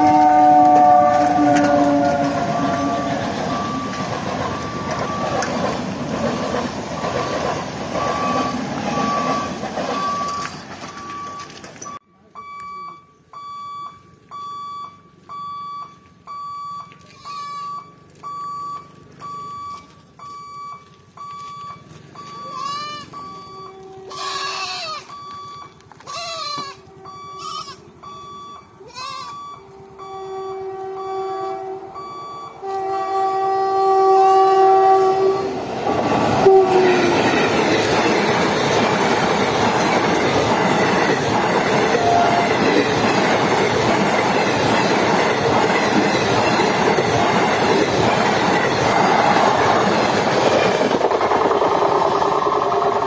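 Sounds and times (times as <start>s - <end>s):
locomotive horn blasts: 0.0s - 3.9s, 22.8s - 25.0s, 26.6s - 27.9s, 29.1s - 35.6s, 36.4s - 37.4s, 41.9s - 42.7s
train wheels rushing on rails: 0.0s - 12.0s, 29.8s - 53.0s
level-crossing alarm beeping: 0.0s - 25.9s, 26.9s - 33.6s, 36.0s - 51.0s.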